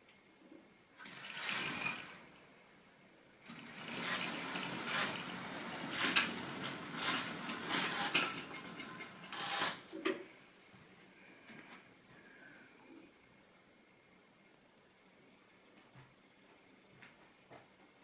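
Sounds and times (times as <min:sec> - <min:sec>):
model train rattling on track: 0:03.5 - 0:09.9.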